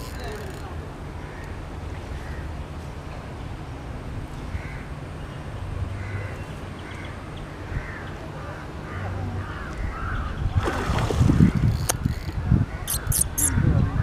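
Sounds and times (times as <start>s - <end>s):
short bird calls: 12.8s - 13.6s.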